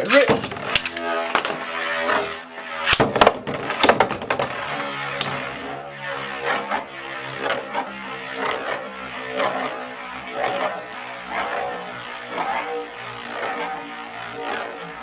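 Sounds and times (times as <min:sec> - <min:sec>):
tops clashing with sharp clicks: 0:00.0 - 0:01.8
spinning tops whirring: 0:00.0 - 0:15.0.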